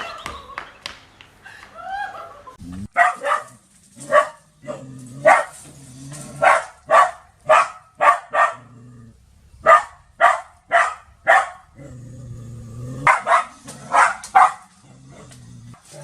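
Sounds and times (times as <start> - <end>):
dog barking: 2.9 - 5.6, 6.4 - 8.7, 9.6 - 11.7, 13.0 - 14.7.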